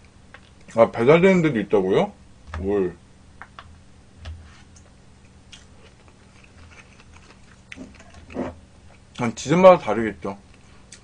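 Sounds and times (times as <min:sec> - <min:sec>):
chewing food: 0:05.5 - 0:09.2.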